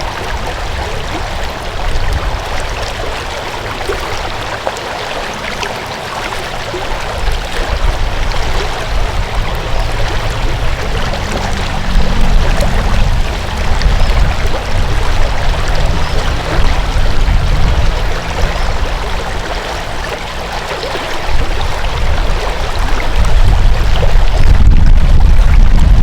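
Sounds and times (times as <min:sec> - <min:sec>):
stream water rushing: 0:00.0 - 0:26.0
deep low rumble: 0:05.4 - 0:26.0.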